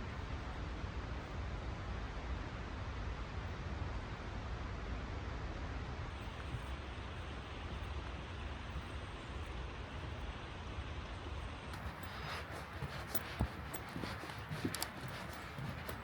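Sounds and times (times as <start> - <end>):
fast-flowing creek water: 11.8 - 16.0.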